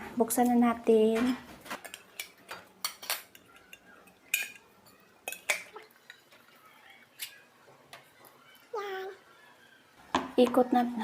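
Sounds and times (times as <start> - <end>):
metal pot and utensils clanking: 0.4 - 8.1.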